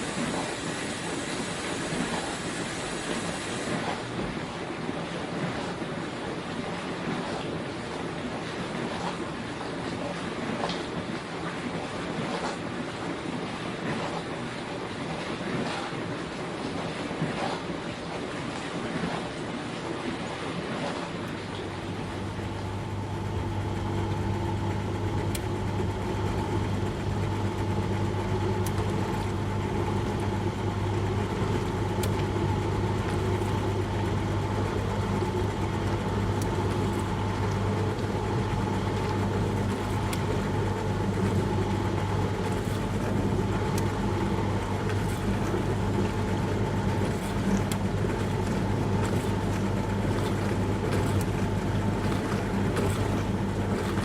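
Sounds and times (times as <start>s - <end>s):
water spraying hiss: 0.0s - 4.0s
dishwasher motor hum: 0.0s - 54.0s.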